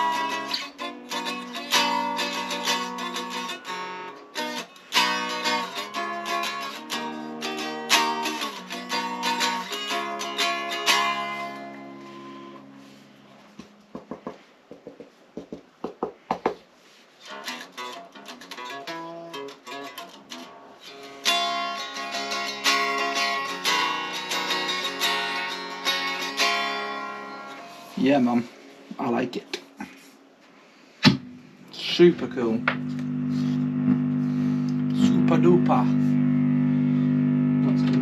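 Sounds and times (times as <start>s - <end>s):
electric guitar chords: 0.0s - 13.8s, 17.4s - 28.0s, 31.1s - 38.0s.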